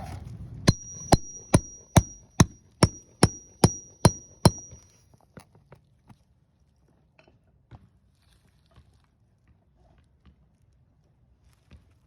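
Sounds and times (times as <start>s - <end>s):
hammer striking metal bar: 0.7s - 4.8s.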